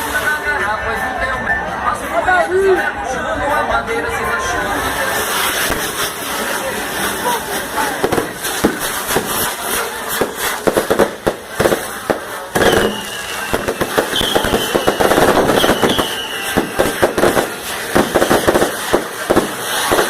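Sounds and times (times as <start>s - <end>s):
firecrackers popping: 4.7s - 20.0s
short falling whistles: 12.6s - 16.8s.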